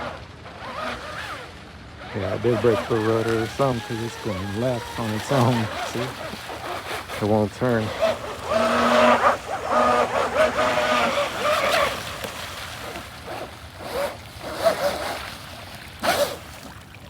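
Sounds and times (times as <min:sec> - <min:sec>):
model boat electric motor whining: 0:00.0 - 0:16.8.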